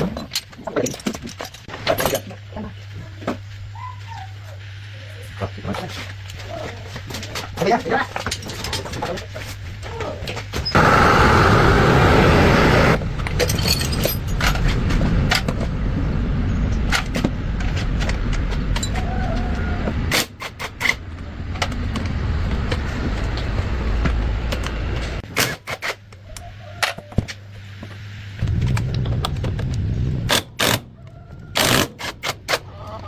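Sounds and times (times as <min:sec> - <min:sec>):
loud rushing noise: 0:10.7 - 0:13.0
metallic clicks and clinks: 0:13.2 - 0:14.7.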